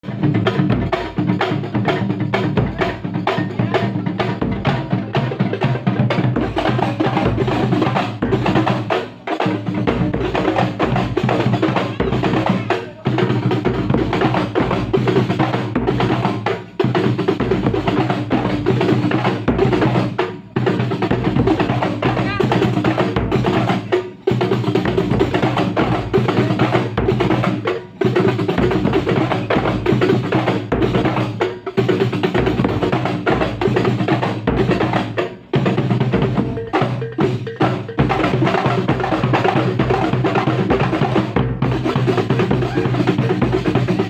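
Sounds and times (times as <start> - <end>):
frame drums and bass drum: 0.0 - 44.0.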